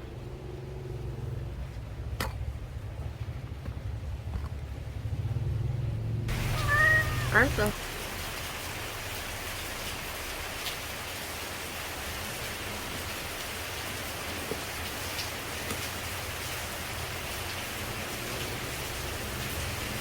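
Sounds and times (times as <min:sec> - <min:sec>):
rain falling on leaves: 0:06.3 - 0:20.0.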